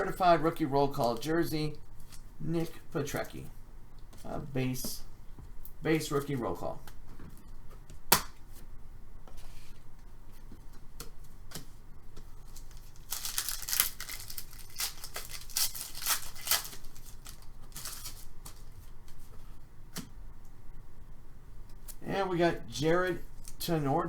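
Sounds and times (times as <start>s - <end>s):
packaging rustling and tearing: 12.4s - 19.2s.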